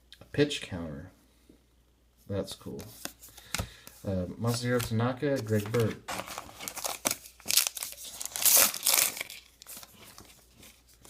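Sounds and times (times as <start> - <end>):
cards and wrapper rustling: 2.8 - 11.0.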